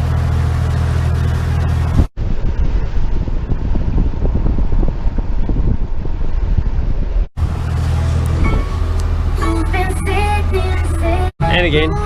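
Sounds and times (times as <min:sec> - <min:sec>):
boat engine drone: 0:00.0 - 0:12.0
wind buffeting microphone: 0:01.9 - 0:09.2.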